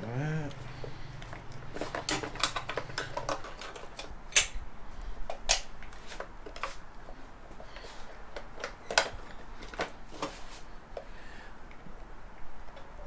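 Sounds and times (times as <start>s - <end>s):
plastic connectors clicking and clacking: 1.2s - 4.6s.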